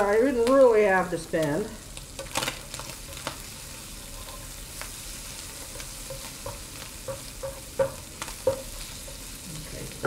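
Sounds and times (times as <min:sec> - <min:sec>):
food sizzling in a skillet: 0:00.0 - 0:10.0
spatula tapping on pan: 0:04.8 - 0:09.4
sharp knock on pan: 0:06.4 - 0:08.7.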